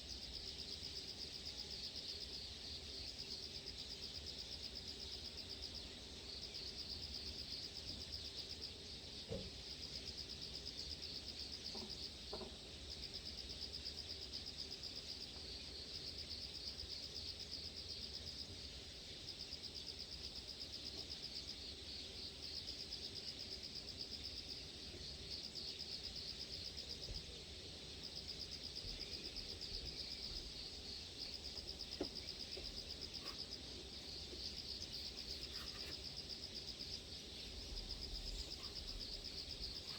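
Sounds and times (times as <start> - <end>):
insect trill: 10.3 - 39.9.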